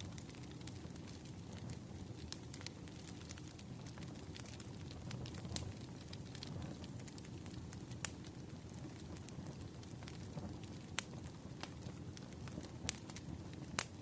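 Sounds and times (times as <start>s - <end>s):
wood fire crackling: 0.0s - 14.0s
sharp pops and snaps: 12.8s - 14.0s.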